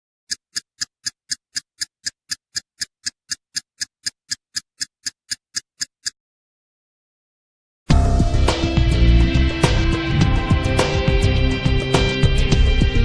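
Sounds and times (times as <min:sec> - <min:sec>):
sharp ticks: 0:00.3 - 0:06.2.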